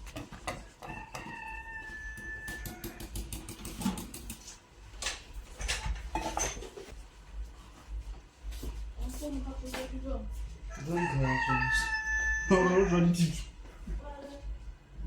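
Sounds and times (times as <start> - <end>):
utensils and dishes knocking: 0.0 - 1.4, 2.1 - 6.8.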